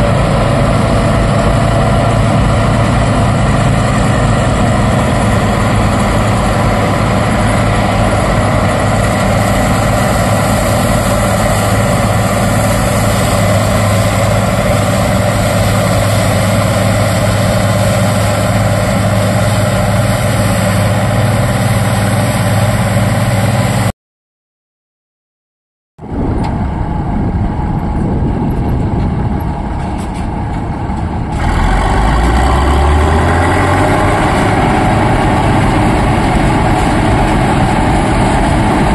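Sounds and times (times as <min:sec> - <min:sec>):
diesel engine running under load: 0:00.0 - 0:23.9, 0:26.0 - 0:38.9
engine revving up: 0:31.3 - 0:38.9.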